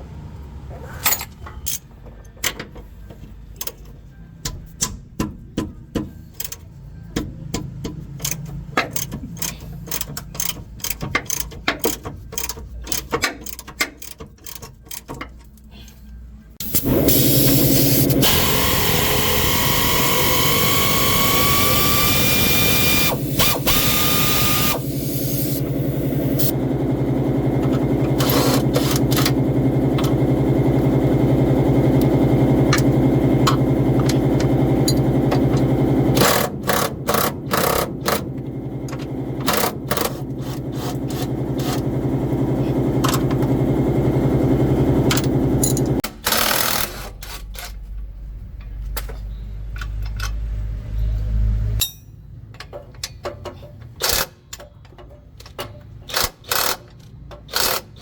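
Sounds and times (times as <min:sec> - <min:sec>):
engine hum: 0:16.6 - 0:46.0
mechanical clatters: 0:45.0 - 0:50.6.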